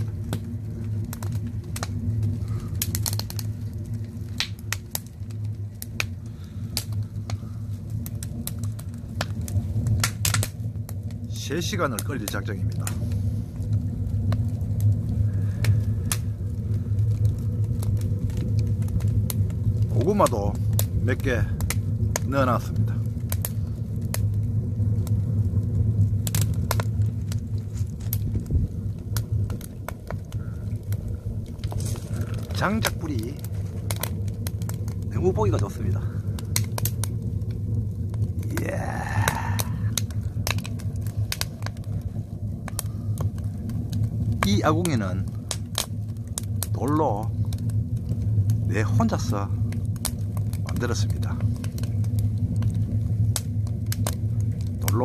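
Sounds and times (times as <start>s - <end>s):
firewood popping and cracking: 0.0s - 55.0s
wood fire rumbling: 0.0s - 55.0s.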